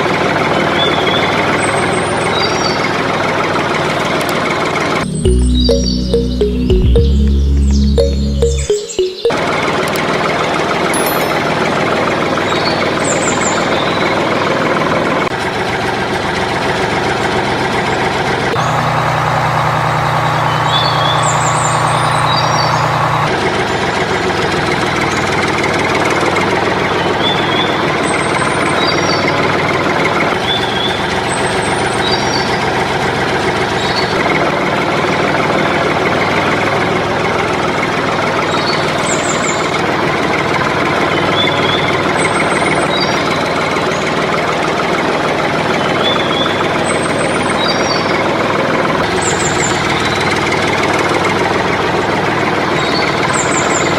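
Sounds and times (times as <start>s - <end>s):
tractor engine running: 18.6s - 23.3s.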